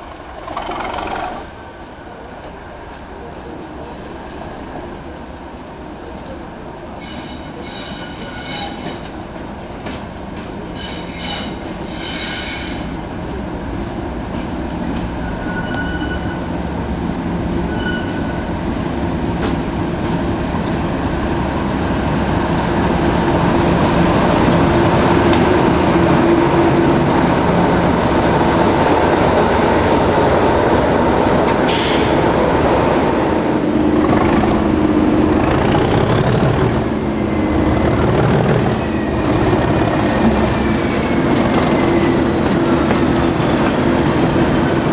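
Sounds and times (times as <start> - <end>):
wheels squealing on rails: 7.0 - 9.1, 10.7 - 13.0, 15.0 - 16.6, 17.7 - 18.5, 35.3 - 43.8
diesel locomotive engine running: 19.4 - 44.9.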